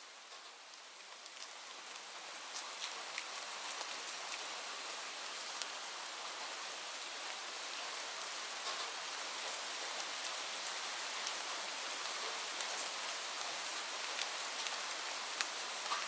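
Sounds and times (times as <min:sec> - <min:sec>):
rain falling on leaves: 0:00.0 - 0:16.0.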